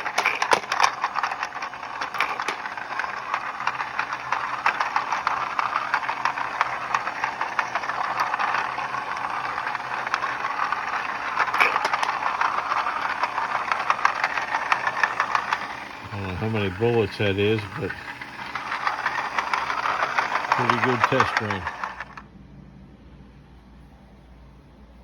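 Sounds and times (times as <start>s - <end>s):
bullets rattling and clicking: 0.0s - 22.2s.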